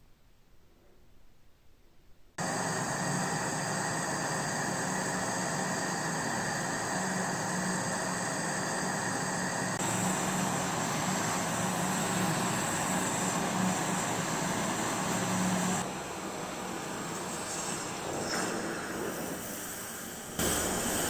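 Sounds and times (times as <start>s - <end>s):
hissing abrasive noise: 18.8s - 21.0s.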